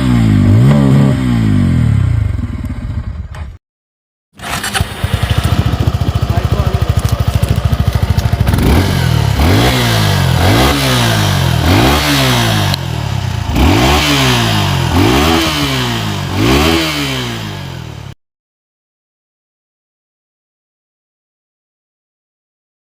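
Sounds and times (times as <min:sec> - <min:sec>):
motorcycle exhaust revving: 0:00.0 - 0:03.4, 0:04.4 - 0:18.2.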